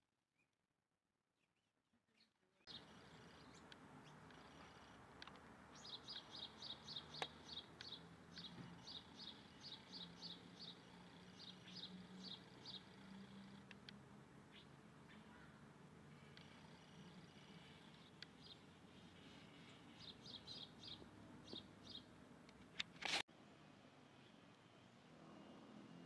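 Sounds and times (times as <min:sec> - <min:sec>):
bird chirping: 0:02.2 - 0:22.2.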